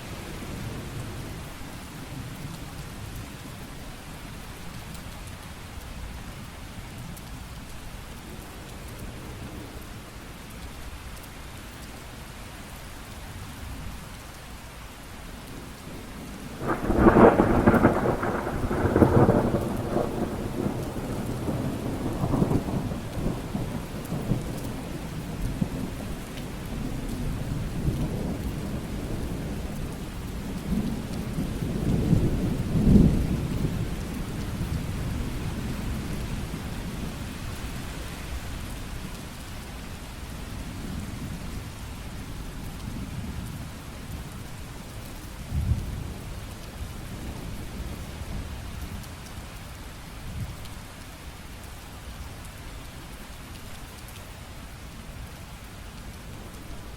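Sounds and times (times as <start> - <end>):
steady rain falling: 0.0 - 56.9
thunderclap and rumbling: 16.6 - 26.0, 45.5 - 46.2.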